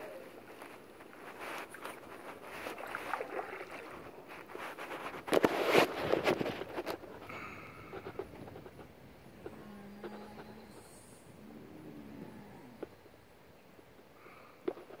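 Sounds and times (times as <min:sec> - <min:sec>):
paddle strokes splashing water: 0:00.3 - 0:07.3.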